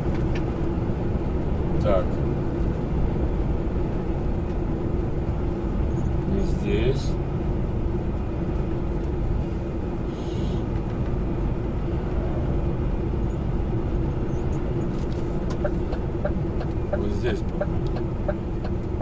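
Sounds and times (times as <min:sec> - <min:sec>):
truck engine and road noise: 0:00.0 - 0:19.0
turn signal ticking: 0:14.5 - 0:19.0.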